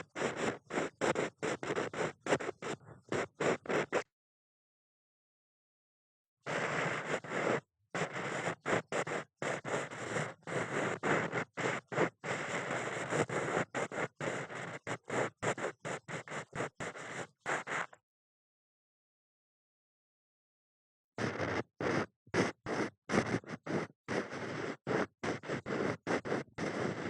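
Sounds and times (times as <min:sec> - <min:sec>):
ear pick scratching: 0:00.0 - 0:04.0, 0:06.5 - 0:18.0, 0:21.2 - 0:27.0.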